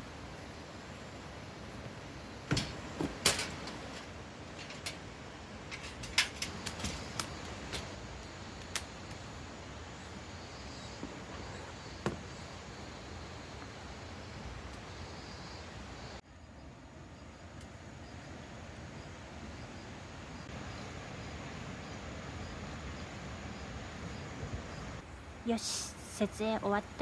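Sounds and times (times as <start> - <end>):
faint background hiss: 0.0 - 27.0
tent gear clicks and knocks: 2.5 - 5.0, 5.7 - 8.0.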